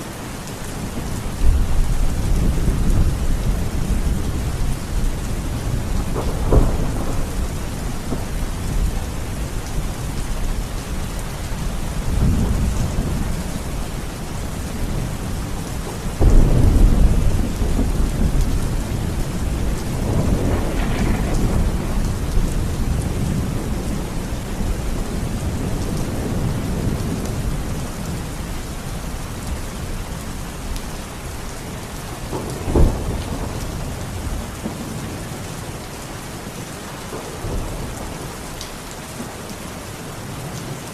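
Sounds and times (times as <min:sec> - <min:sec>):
steady rain: 0:00.0 - 0:40.9
rolling thunder: 0:00.9 - 0:29.9, 0:32.2 - 0:35.4
sharp thunder crack: 0:19.5 - 0:23.7.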